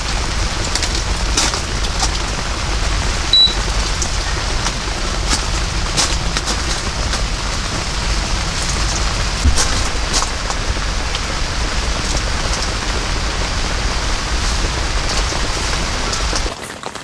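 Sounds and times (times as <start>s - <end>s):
sharp raindrop strikes: 0.0s - 16.6s
heavy rain pouring: 0.0s - 17.0s
low rumble: 6.7s - 16.5s.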